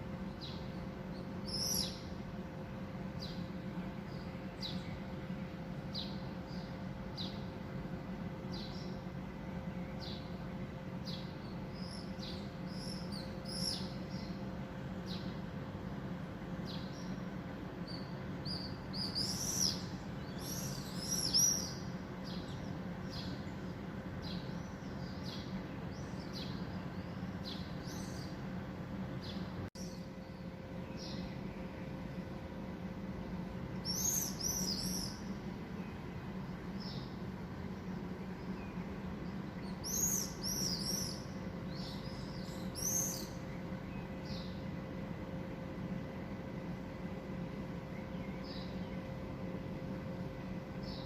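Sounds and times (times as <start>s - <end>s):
low background noise: 0.0s - 51.0s
small bird chirping: 1.4s - 2.1s, 11.0s - 14.4s, 17.9s - 23.5s, 33.8s - 35.3s, 38.4s - 43.4s.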